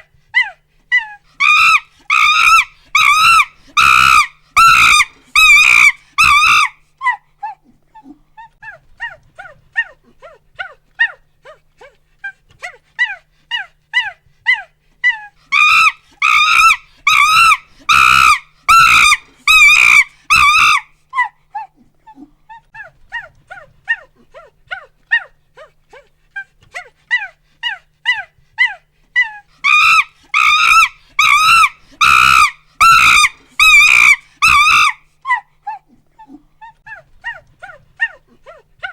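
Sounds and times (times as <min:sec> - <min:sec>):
monkey hooting and screaming: 0:00.4 - 0:07.2, 0:13.0 - 0:21.3, 0:26.8 - 0:35.8.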